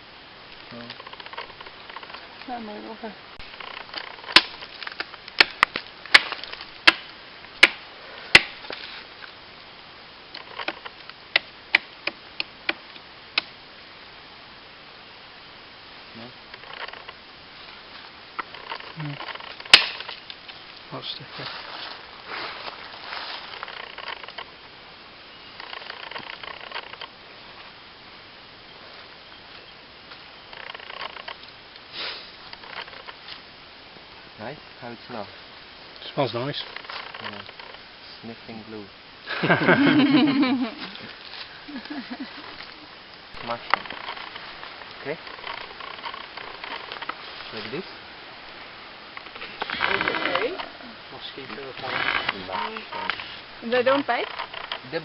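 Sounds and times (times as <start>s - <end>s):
faint high insect drone: 0.0s - 55.0s
rainforest background hiss: 0.0s - 55.0s
chopping blows into wood: 7.6s - 8.6s.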